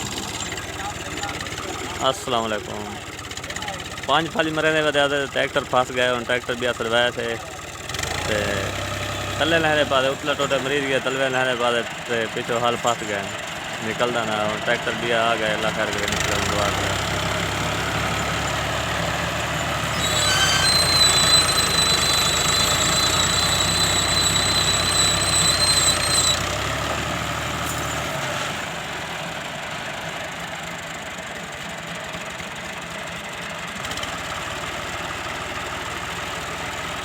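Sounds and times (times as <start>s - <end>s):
tractor engine revving: 0.0s - 37.0s
high steady squeal: 9.1s - 13.3s, 18.0s - 26.9s.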